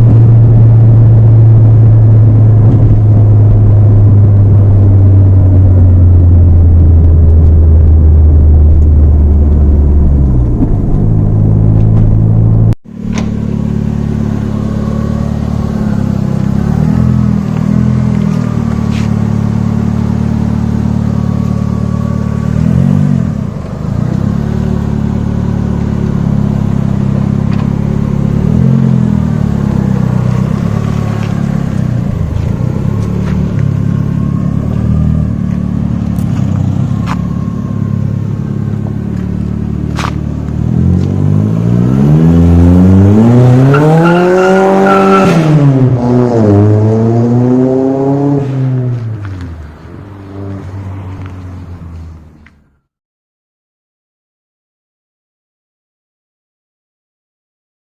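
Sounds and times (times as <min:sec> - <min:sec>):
car engine running under load: 0:00.0 - 0:52.8.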